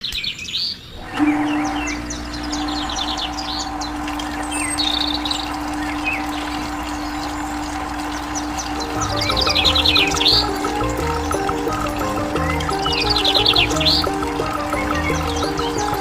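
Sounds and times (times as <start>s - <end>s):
small birds chirping: 0.0s - 16.0s
steady droning hum: 1.0s - 16.0s.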